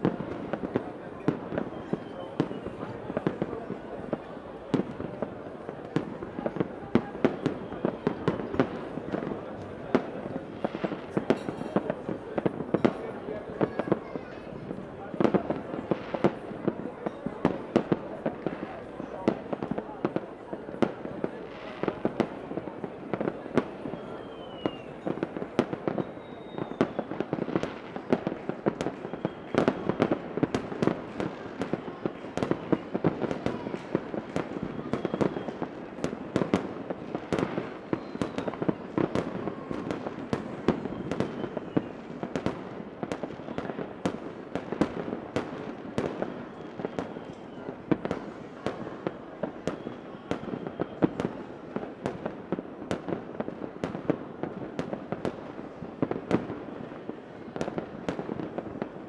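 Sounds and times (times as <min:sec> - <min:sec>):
fireworks bangs and crackles: 0:00.0 - 0:59.0
whistles gliding down: 0:24.0 - 0:25.0, 0:26.0 - 0:27.1.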